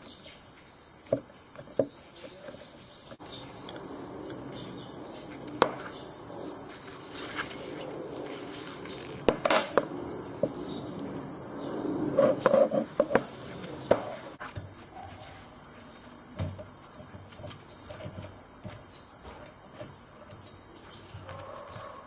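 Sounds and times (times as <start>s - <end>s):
insect chirping: 0.0s - 22.0s
clinks of hard objects handled: 7.1s - 9.9s.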